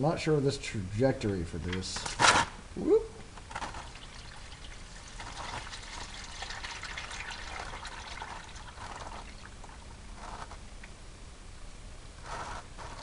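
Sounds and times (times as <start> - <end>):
oil pouring into pan: 3.8 - 9.6.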